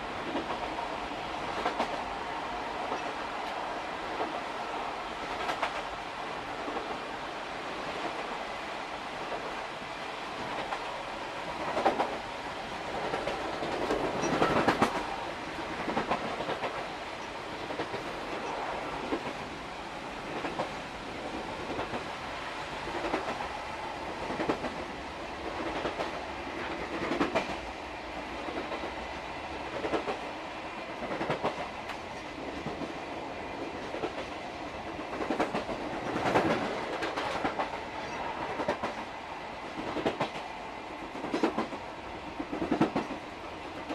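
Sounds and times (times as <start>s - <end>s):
train running rumble: 0.0s - 43.9s
train wheels clattering over rail joints: 13.0s - 15.1s.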